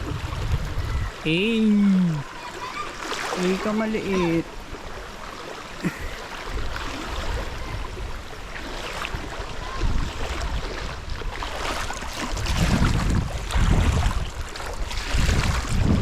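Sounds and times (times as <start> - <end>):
wind buffeting microphone: 0.0 - 2.3, 5.9 - 16.0.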